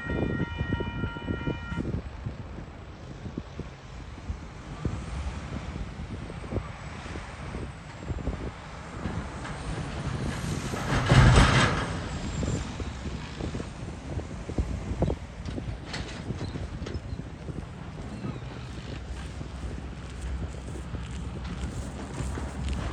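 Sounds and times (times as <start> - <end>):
freight train rumble: 0.0 - 22.9
train wheels clicking on rail joints: 7.1 - 22.9.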